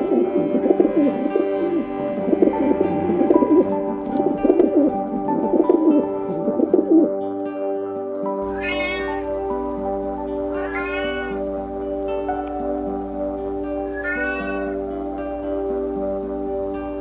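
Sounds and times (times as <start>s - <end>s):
pigeons cooing: 0.0s - 7.2s, 10.5s - 11.4s, 13.8s - 15.1s
soft background music: 0.0s - 17.0s
cat meowing: 8.5s - 9.3s, 10.6s - 11.4s, 13.9s - 14.8s.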